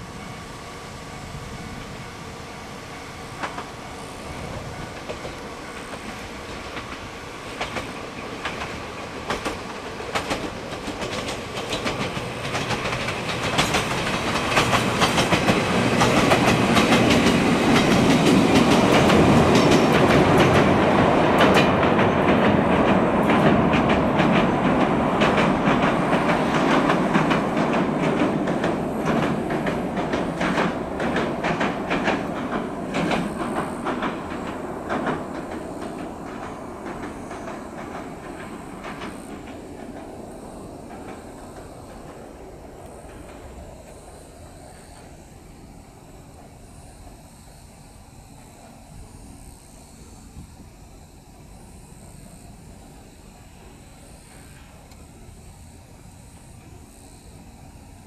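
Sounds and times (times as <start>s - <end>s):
electric train passing: 0.0s - 58.0s
wheels clicking over rail joints: 3.4s - 45.3s.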